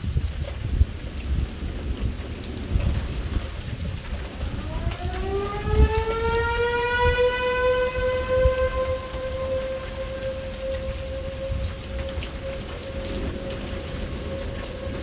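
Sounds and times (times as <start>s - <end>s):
heavy rain: 0.0s - 15.0s
low rumbles: 0.2s - 15.0s
warning siren winding up: 4.3s - 15.0s.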